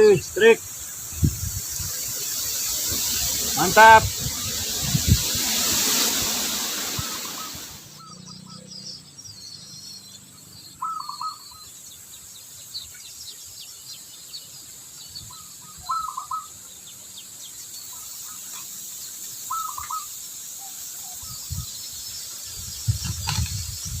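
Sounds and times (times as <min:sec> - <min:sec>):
high bird chirps: 0:00.0 - 0:24.0
steady high hiss: 0:00.0 - 0:24.0
bird call phrase: 0:03.6 - 0:04.1.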